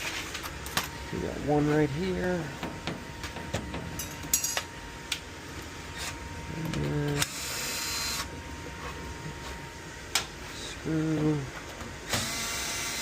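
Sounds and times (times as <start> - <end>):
cordless drill whirring: 7.2 - 8.3, 12.1 - 13.0.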